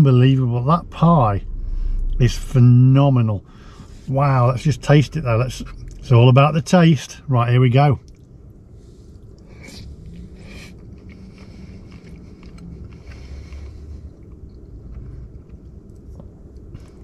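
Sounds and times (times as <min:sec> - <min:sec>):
low hum: 0:00.0 - 0:17.0
man chewing food: 0:08.0 - 0:17.0.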